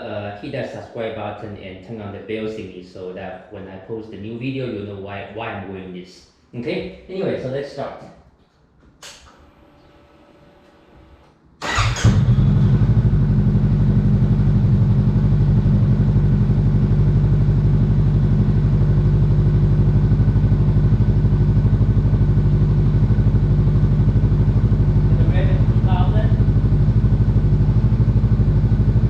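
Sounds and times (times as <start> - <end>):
motorcycle engine starting and idling: 9.3 - 29.0.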